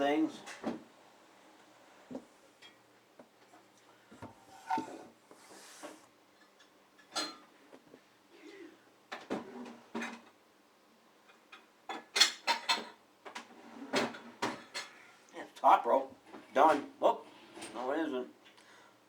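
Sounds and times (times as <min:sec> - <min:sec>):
dishes and utensils clinking: 0:06.5 - 0:07.5.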